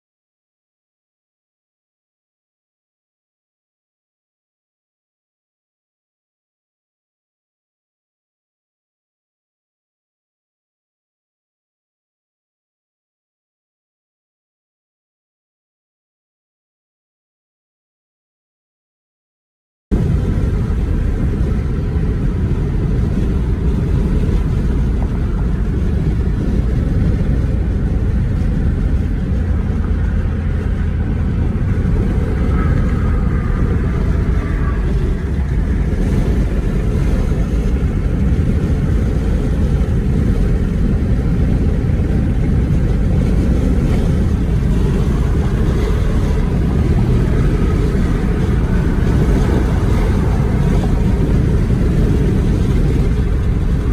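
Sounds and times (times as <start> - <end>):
car road and engine noise: 19.9 - 53.9.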